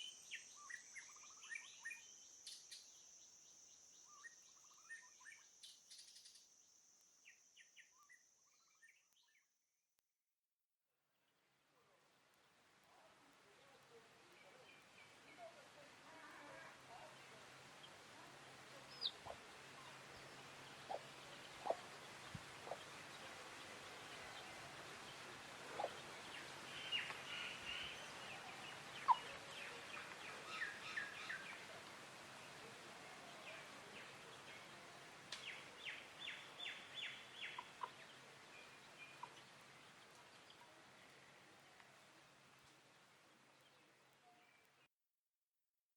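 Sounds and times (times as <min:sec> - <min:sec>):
faint background hiss: 0:00.0 - 0:09.0, 0:11.0 - 0:44.9
birds chirping: 0:17.8 - 0:31.7.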